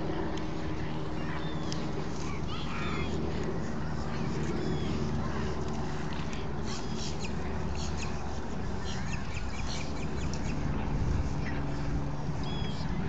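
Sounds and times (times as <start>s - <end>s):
steady low rumble: 0.0s - 13.0s
birds calling: 6.6s - 10.7s.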